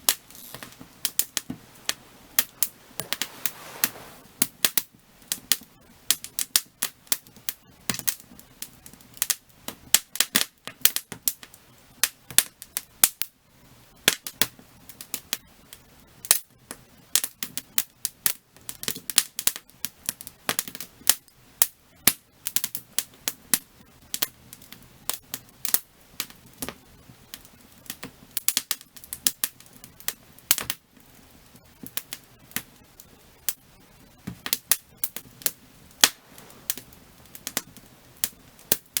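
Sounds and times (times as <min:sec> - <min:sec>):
low hiss of flames: 0:00.0 - 0:07.7, 0:31.0 - 0:39.0
firewood crackling and popping: 0:00.0 - 0:13.3, 0:14.0 - 0:39.0.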